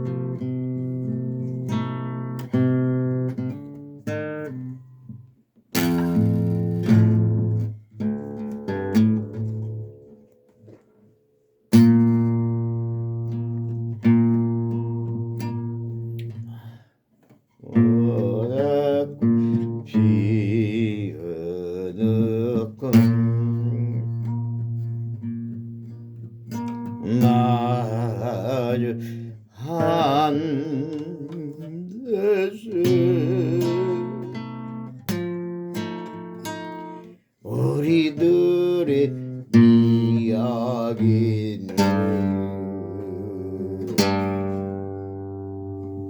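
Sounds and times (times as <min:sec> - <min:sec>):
acoustic guitar strumming chords: 0:00.0 - 0:10.8, 0:11.7 - 0:16.8, 0:17.6 - 0:46.0
man singing: 0:17.6 - 0:24.8, 0:26.9 - 0:34.9, 0:37.4 - 0:45.2.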